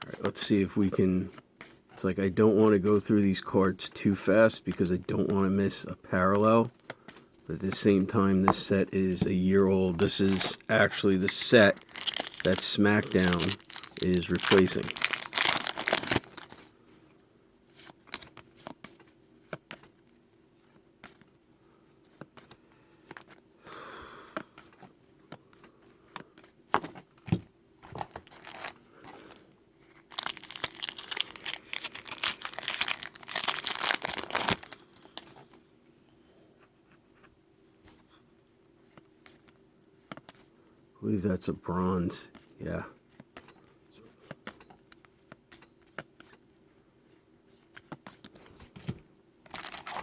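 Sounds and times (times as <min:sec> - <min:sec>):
wrapper crinkling and tearing: 0:10.0 - 0:16.6, 0:28.2 - 0:28.8, 0:30.0 - 0:35.3, 0:49.5 - 0:50.0.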